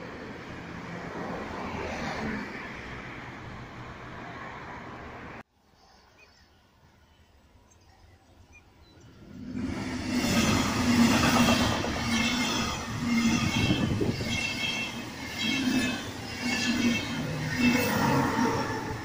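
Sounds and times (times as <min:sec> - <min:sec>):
steady train whine: 0:08.6 - 0:19.0
train wheels rumbling on rails: 0:09.1 - 0:19.0.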